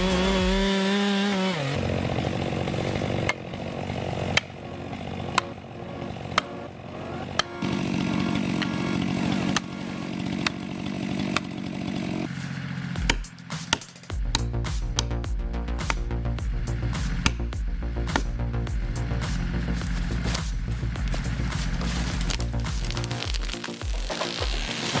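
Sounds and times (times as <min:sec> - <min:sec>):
chainsaw cutting wood: 0:00.0 - 0:06.6, 0:07.3 - 0:15.1, 0:21.6 - 0:25.0.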